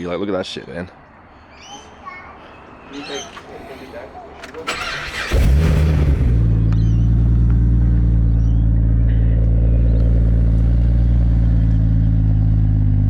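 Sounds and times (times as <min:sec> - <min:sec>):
car engine idling: 0:04.7 - 0:13.0.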